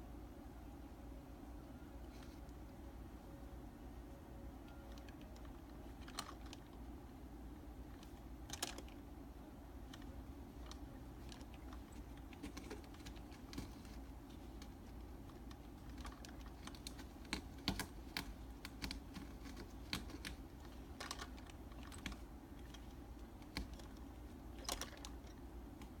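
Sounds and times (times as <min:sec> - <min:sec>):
low steady hum: 0:00.0 - 0:26.0
light clicks and taps: 0:09.8 - 0:26.0.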